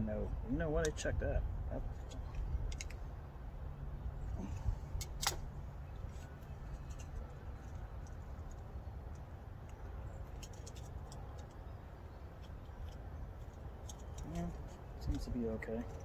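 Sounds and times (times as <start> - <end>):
steady low rumble: 0.0 - 16.0
sharp click: 5.0 - 5.5
light ticks of small parts: 5.0 - 16.0.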